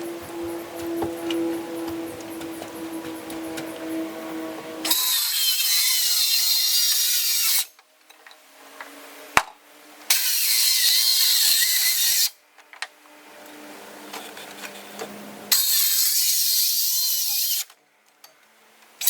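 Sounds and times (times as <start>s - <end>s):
power tool cutting wood: 0.0s - 7.8s, 10.1s - 12.4s, 15.5s - 17.7s.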